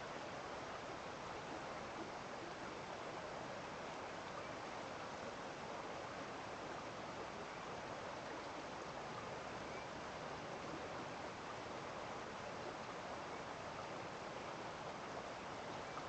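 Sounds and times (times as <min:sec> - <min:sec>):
stream flowing: 0:00.0 - 0:16.0.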